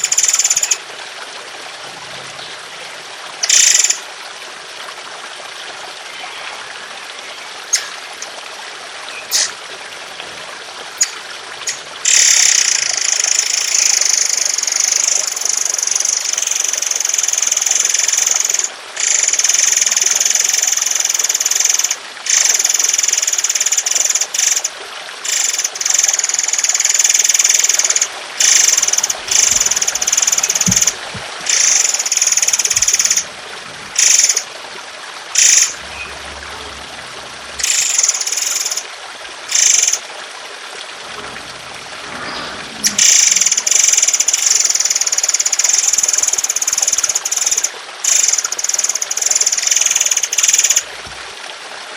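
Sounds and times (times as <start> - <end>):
trickling water: 0.0 - 51.9
songbird rasping rattles: 7.6 - 8.4, 9.2 - 10.4, 11.0 - 14.7, 26.6 - 34.5.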